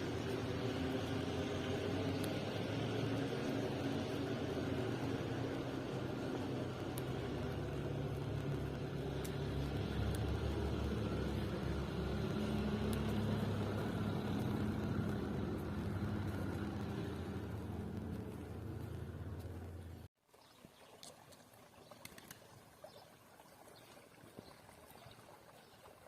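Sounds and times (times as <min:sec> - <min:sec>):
engine humming: 0:00.0 - 0:20.1.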